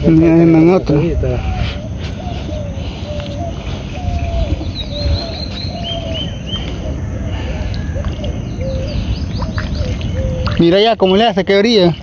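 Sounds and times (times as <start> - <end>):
steady low rumble: 0.0 - 11.0
high bird chirps: 1.5 - 12.0.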